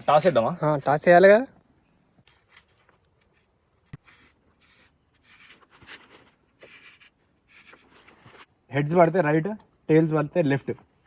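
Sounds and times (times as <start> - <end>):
faint rustling and scratching: 2.2 - 8.6.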